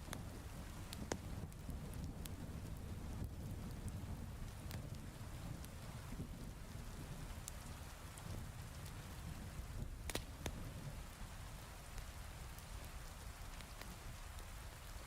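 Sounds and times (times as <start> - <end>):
heavy rain: 0.0 - 15.0
wood fire crackling: 0.0 - 15.0.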